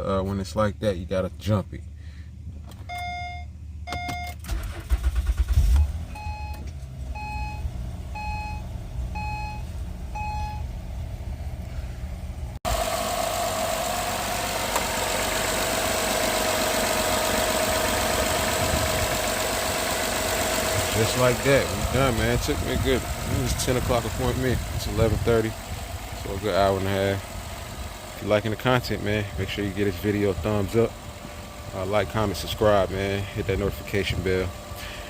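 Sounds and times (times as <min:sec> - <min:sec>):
car engine cranking and running: 0:00.2 - 0:35.0
car warning chime beeping: 0:02.9 - 0:04.4, 0:05.8 - 0:10.7
steady whine: 0:09.8 - 0:35.0.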